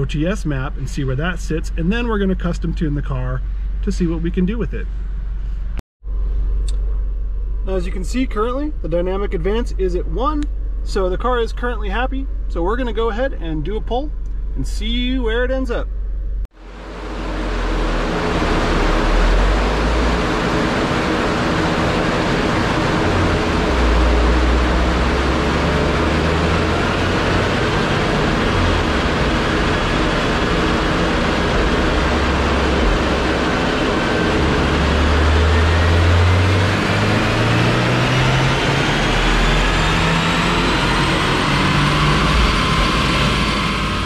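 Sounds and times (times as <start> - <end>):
turbo whine rising in pitch: 15.8 - 44.0
car engine at full throttle: 16.0 - 44.0.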